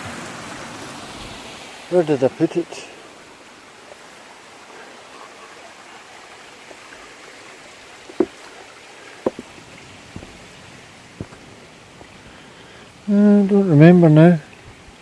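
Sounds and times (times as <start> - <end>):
river flowing over rocks: 0.0 - 15.0
sharp knocks: 8.1 - 8.6, 9.2 - 9.5, 11.2 - 11.4.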